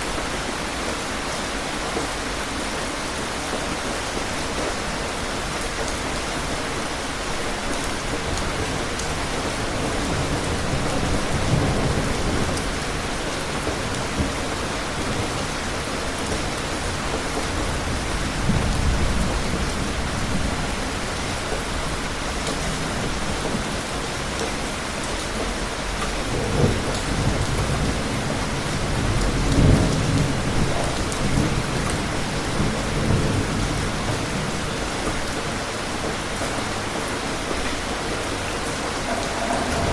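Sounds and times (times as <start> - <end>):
heavy rain: 0.0 - 39.9
low rolls of thunder: 5.6 - 24.0, 25.4 - 35.4, 37.5 - 39.9.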